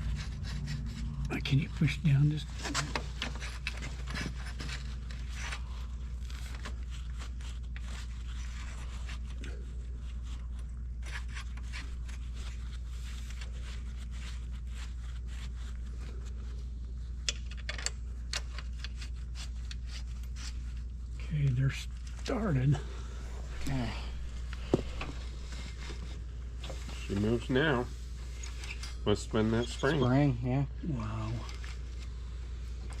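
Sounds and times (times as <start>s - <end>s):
metal parts scraping and clicking: 17.2s - 20.6s, 28.3s - 29.0s.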